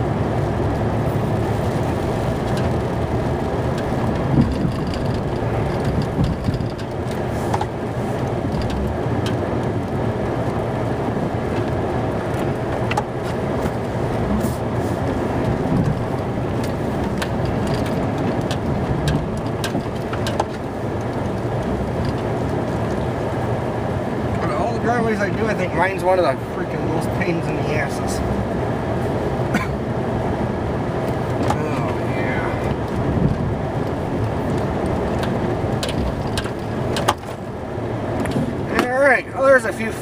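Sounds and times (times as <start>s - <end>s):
truck engine running: 0.0s - 40.0s
light clicks and knocks: 15.4s - 23.1s, 32.6s - 37.4s.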